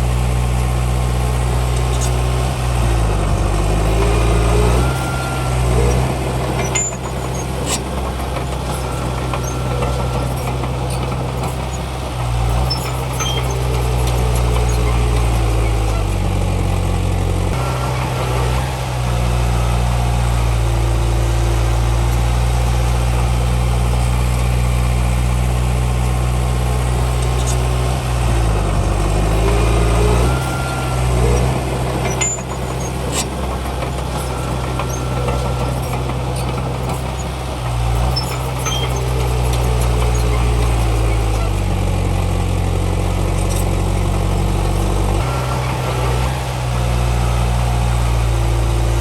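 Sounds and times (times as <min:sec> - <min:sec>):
heavy diesel engine running: 0:00.0 - 0:49.0
sharp metallic clanks: 0:28.8 - 0:37.3.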